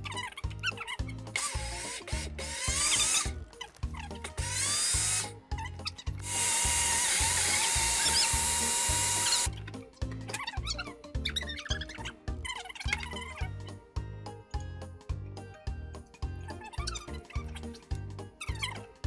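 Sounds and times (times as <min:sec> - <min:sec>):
background music with beat: 0:00.0 - 0:12.6, 0:13.4 - 0:19.0
electric blender whining: 0:01.4 - 0:03.3, 0:04.4 - 0:05.3, 0:06.2 - 0:09.5.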